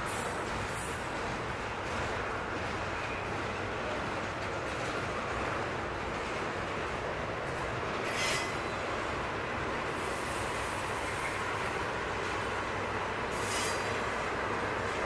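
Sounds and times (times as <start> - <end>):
train wheels rumbling on rails: 0.0 - 15.0
high-pitched wheel squeals: 8.1 - 8.6, 13.4 - 14.0.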